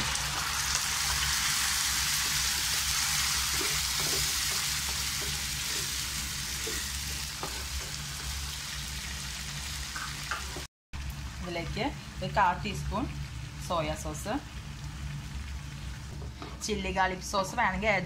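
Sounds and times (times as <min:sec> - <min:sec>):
tomato puree sizzling in oil: 0:00.0 - 0:16.6
wooden spatula stirring in pan: 0:02.1 - 0:08.0.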